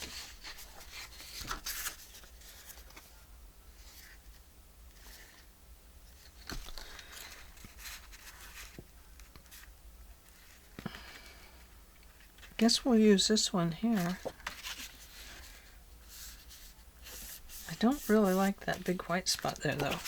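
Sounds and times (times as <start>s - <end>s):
paper rustling: 0.0s - 3.2s, 6.2s - 11.3s, 13.9s - 20.0s.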